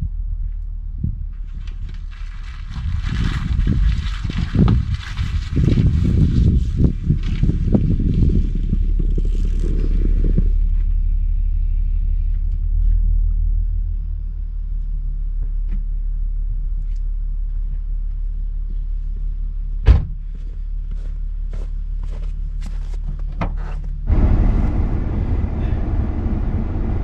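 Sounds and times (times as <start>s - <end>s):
car engine and tyre rumble: 0.0s - 27.0s
sharp thump: 19.8s - 20.2s.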